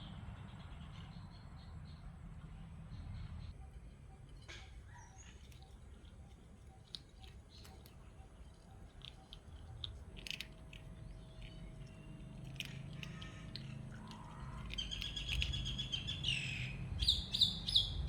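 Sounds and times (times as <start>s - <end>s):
low steady rumble: 0.0s - 18.0s
pets chewing food: 5.3s - 16.3s.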